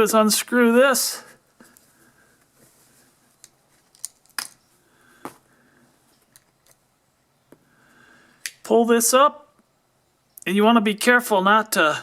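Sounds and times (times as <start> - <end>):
small parts clicking: 3.4 - 4.6.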